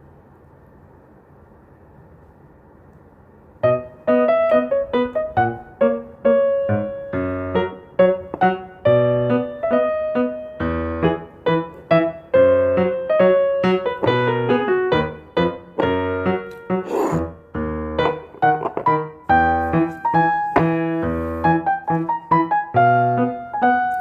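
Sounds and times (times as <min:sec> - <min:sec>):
gentle piano melody: 0:03.6 - 0:24.0.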